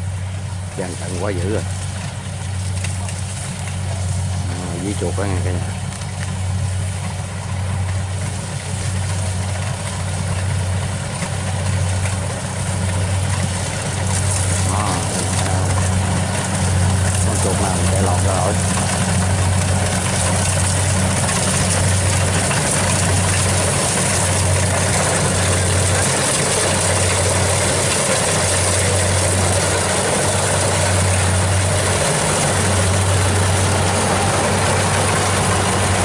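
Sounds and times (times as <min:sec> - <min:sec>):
combine harvester engine hum: 0:00.0 - 0:36.0
machinery rushing noise: 0:00.0 - 0:36.0.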